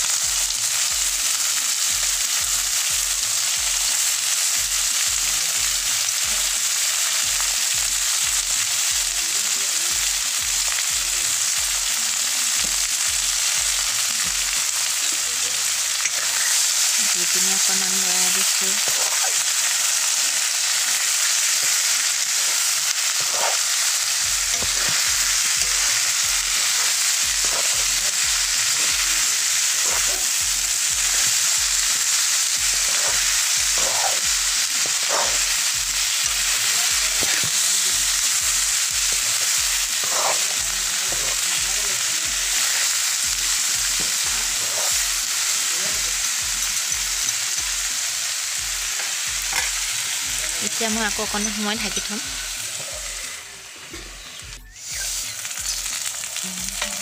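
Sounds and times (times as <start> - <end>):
food sizzling in a pan: 0.0 - 57.0
spatula scraping a pan: 49.0 - 49.9.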